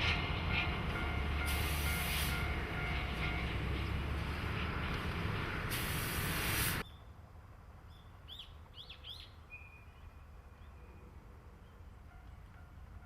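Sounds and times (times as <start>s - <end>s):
freight train rumbling: 0.0s - 6.8s
loud hiss: 1.5s - 2.6s, 5.6s - 6.8s.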